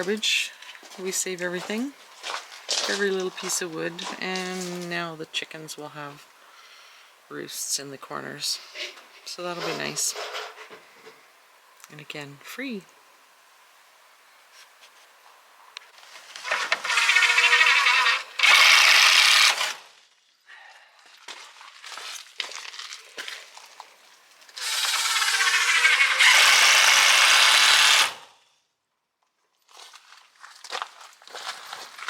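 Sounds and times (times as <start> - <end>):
power drill driving screws into wood: 16.3 - 19.9, 24.5 - 28.4.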